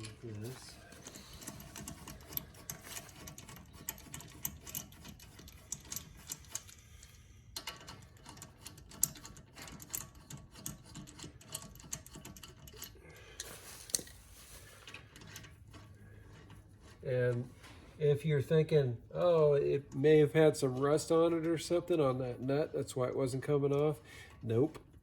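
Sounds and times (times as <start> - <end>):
tools clicking and tapping: 0.9 - 14.2.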